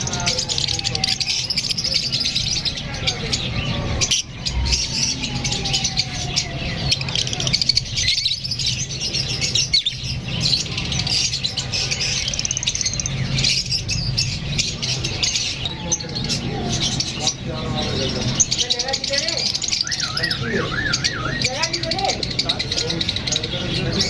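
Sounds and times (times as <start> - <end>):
lovebirds chirping and squawking: 0.0 - 24.0.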